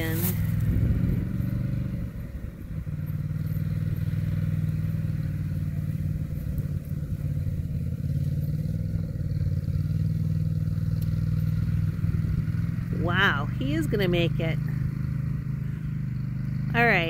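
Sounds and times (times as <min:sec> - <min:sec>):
atv engine low drone: 0:00.0 - 0:17.0.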